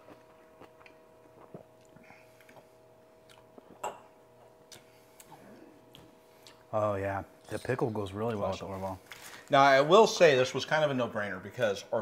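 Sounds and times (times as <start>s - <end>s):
chewing and mouth noises: 0.0s - 3.8s
faint steady hum: 0.0s - 12.0s.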